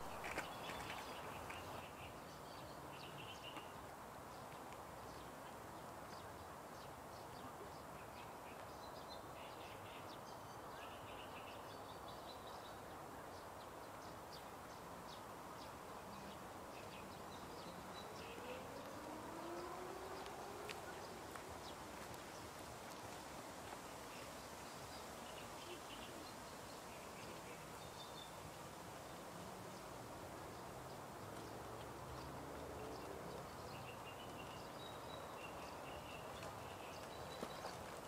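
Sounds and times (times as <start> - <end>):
faint outdoor ambience: 0.0 - 38.0
birds chirping: 29.1 - 38.0.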